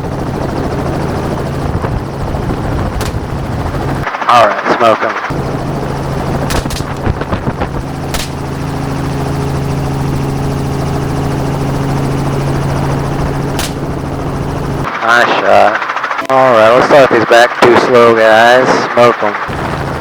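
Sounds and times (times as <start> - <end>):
helicopter droning: 0.0 - 20.0
gunshots: 3.0 - 3.4, 6.4 - 7.4, 8.1 - 8.6, 13.5 - 14.0.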